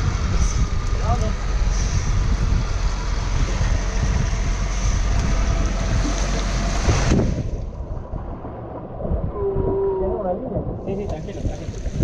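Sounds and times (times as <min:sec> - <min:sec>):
boat engine roar: 0:00.0 - 0:12.0
water rushing: 0:00.0 - 0:12.0
wind buffeting microphone: 0:00.0 - 0:12.0.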